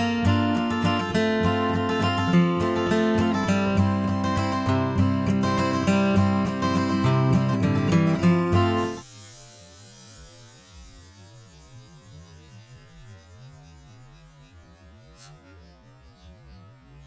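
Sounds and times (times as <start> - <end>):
light hiss: 8.8 - 11.9
faint low wavering hum: 8.8 - 17.0.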